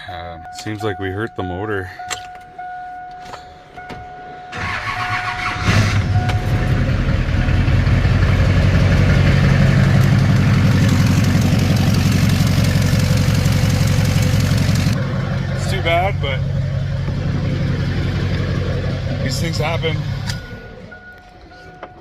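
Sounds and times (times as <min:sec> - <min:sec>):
diesel engine cranking and running: 0:01.9 - 0:22.0.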